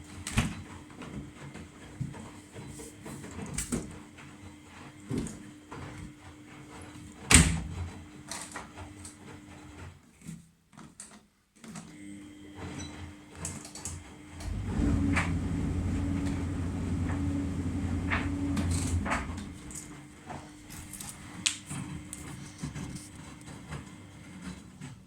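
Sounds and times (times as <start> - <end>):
washing machine rumble: 14.0 - 25.0
steady low hum: 14.4 - 20.0.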